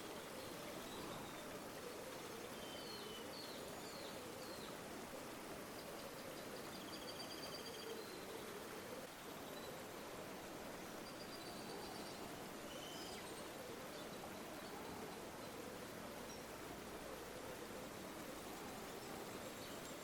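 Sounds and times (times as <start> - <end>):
river water flowing: 0.0 - 20.0.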